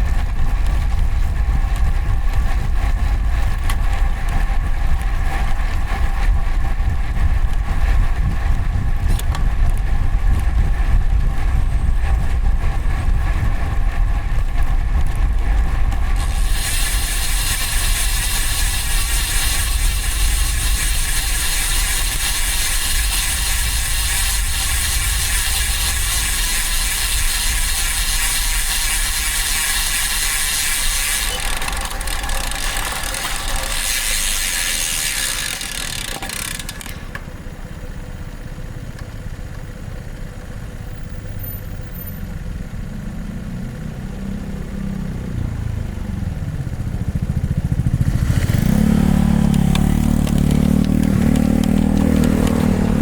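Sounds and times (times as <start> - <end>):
wind on microphone: 0.0 - 28.4
traffic hum: 0.0 - 53.0.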